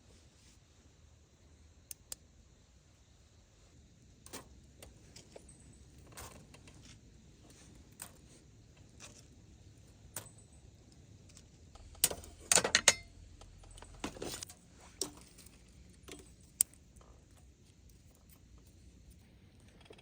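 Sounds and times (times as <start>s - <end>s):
faint steady background noise: 0.0s - 20.0s
metallic clinks and clatters: 10.1s - 10.7s.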